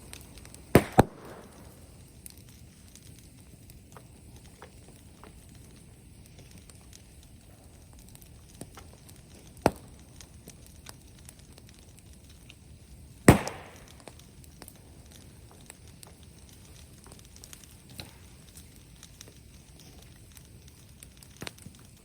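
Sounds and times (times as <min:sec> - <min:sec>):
bonfire crackling: 0:00.0 - 0:22.0
sharp loud cracks: 0:00.7 - 0:01.7, 0:13.3 - 0:14.2.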